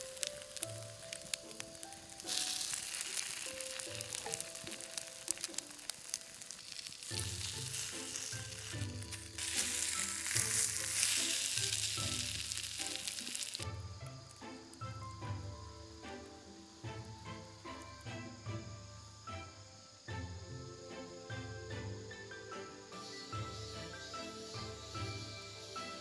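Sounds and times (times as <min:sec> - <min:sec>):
food sizzling in a frying pan: 0:00.0 - 0:14.9, 0:22.8 - 0:26.0
background music: 0:00.0 - 0:26.0.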